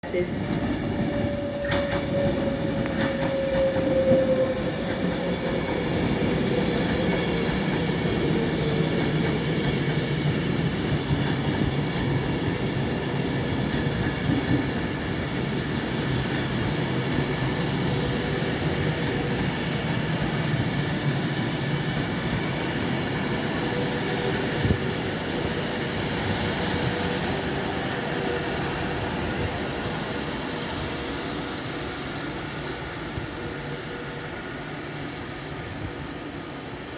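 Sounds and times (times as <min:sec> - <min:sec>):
electric train rumble and whine: 0:00.0 - 0:36.9
thin high wheel squeal: 0:20.5 - 0:23.3.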